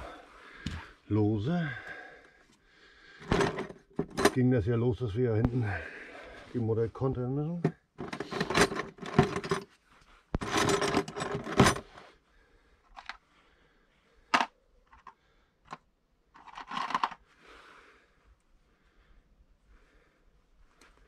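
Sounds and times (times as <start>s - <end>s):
dense metallic rattle: 3.2s - 4.4s
metal spanners clinking: 3.2s - 4.5s, 8.0s - 9.7s, 10.4s - 11.9s.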